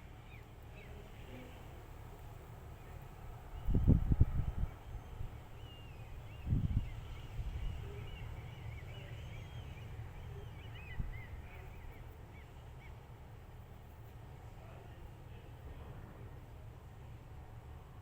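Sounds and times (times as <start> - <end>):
small birds chirping: 4.6 - 13.1.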